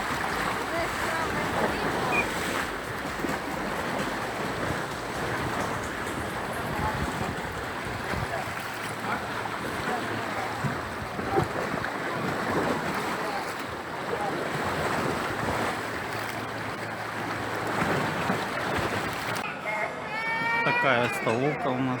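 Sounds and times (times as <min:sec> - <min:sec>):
faint voices: 0:00.0 - 0:14.7, 0:19.4 - 0:22.0
wind buffeting microphone: 0:00.0 - 0:19.4
sea waves washing at shore: 0:00.0 - 0:19.5.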